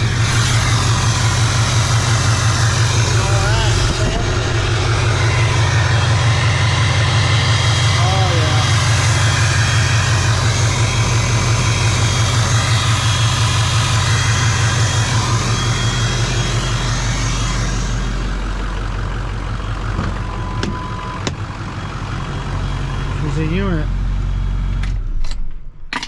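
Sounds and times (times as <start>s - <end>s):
diesel engine idling: 0.0s - 25.0s
engine shutting off: 0.0s - 26.0s.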